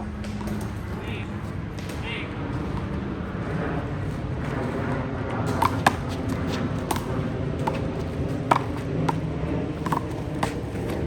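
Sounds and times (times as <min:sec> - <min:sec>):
rubber handball slapping: 0:05.5 - 0:11.0.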